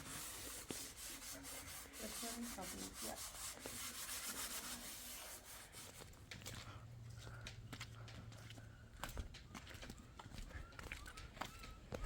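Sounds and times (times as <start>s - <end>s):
scratchy rubbing strokes: 0.0s - 6.0s.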